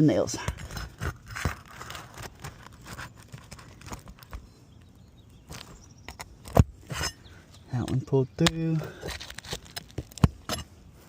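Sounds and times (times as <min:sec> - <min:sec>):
roof shingles clicking and scraping: 0:00.5 - 0:04.5, 0:07.9 - 0:10.6.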